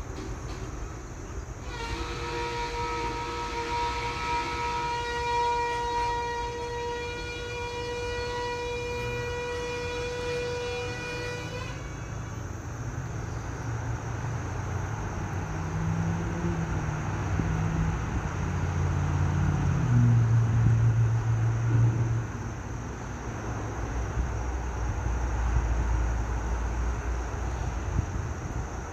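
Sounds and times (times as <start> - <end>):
train engine rumble: 0.0 - 28.9
train horn blast: 1.6 - 13.5.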